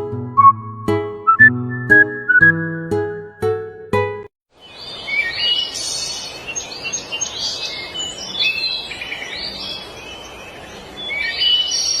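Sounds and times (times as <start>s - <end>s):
small songbirds chirping: 4.5s - 12.0s.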